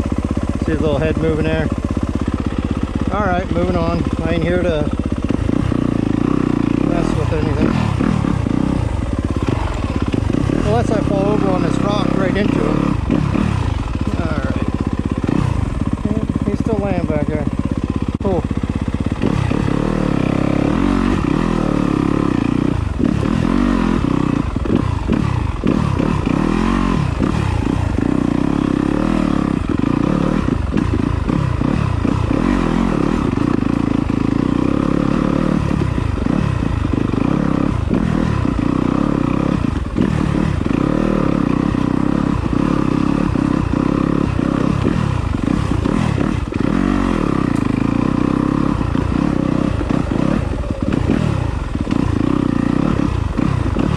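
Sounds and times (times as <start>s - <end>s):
dirt bike engine running: 0.0s - 53.9s.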